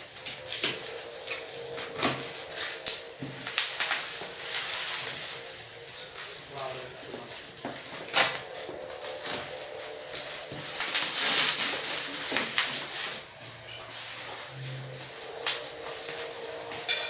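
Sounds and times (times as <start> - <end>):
bubble wrap crinkling and tearing: 0.4 - 16.8
packaging rustling: 0.4 - 16.8.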